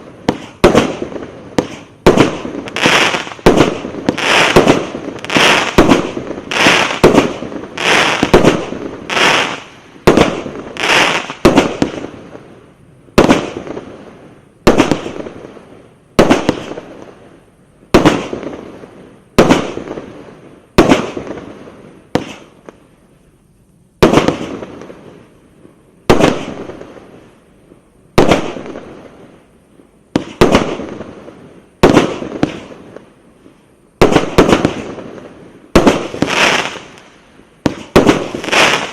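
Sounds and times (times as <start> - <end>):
firework shots banging: 0.0 - 12.1, 20.8 - 21.5, 22.1 - 22.6, 24.0 - 24.7, 30.2 - 31.1, 31.8 - 32.8, 34.0 - 35.0, 35.8 - 36.8, 37.6 - 38.9.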